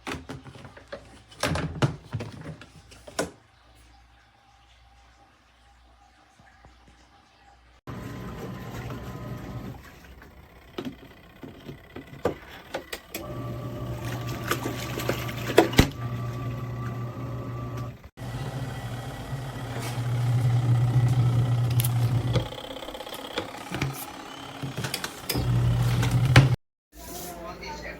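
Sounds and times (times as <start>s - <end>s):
washing machine motor humming: 7.9s - 26.6s.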